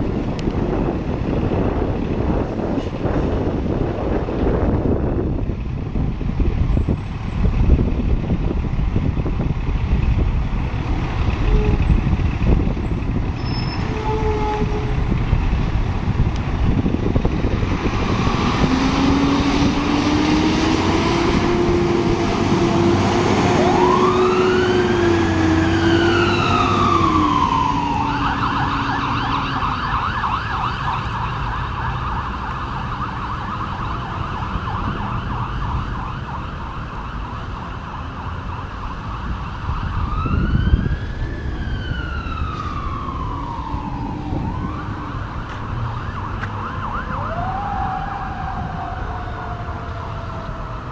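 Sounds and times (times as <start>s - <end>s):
fire engine siren wailing and yelping: 17.2s - 50.9s
low steady siren tone: 18.4s - 50.9s.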